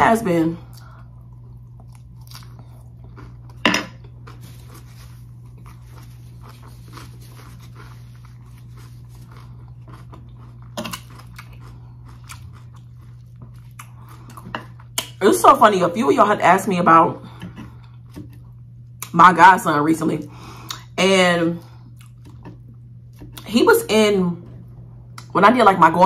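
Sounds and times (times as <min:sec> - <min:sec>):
low hum: 0:00.0 - 0:26.0
chewing and crunching lettuce: 0:00.3 - 0:15.2, 0:21.6 - 0:23.9.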